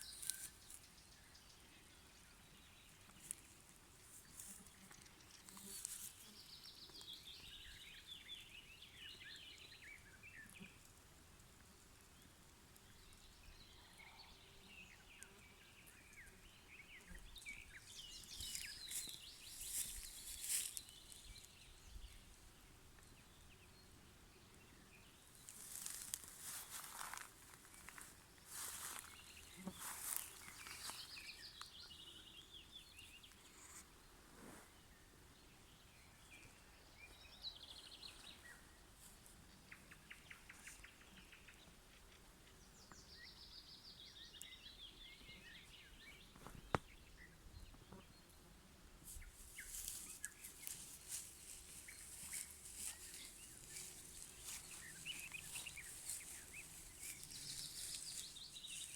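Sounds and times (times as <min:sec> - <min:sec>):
nightingale singing: 0:16.0 - 0:22.1, 0:49.2 - 0:58.9.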